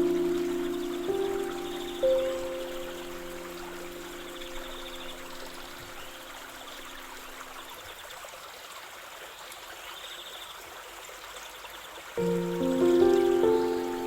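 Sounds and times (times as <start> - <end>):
soft held music tones: 0.0 - 7.7, 12.2 - 14.0
stream water babbling: 0.0 - 14.0.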